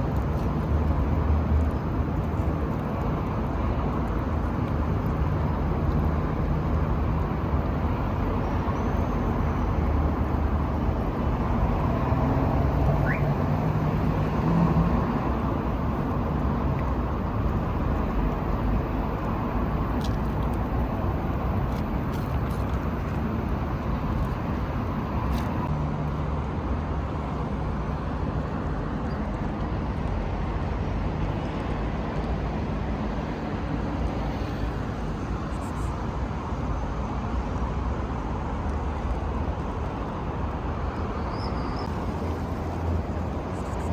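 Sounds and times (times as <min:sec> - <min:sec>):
road traffic noise: 0:00.0 - 0:43.9
passing car engines humming: 0:11.4 - 0:25.8.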